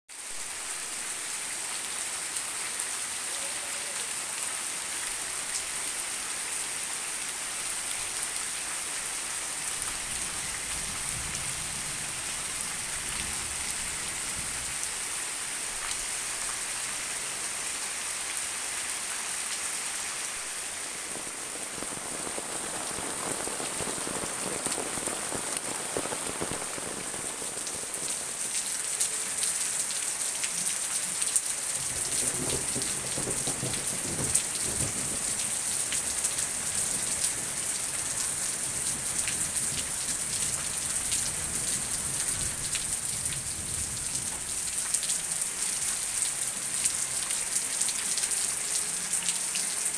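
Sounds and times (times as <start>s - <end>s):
rain pattering: 0.1s - 49.9s.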